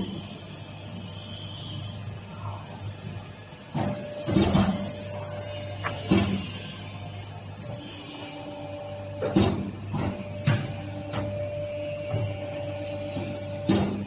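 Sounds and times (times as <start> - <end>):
hydraulic unit humming: 0.0 - 14.0.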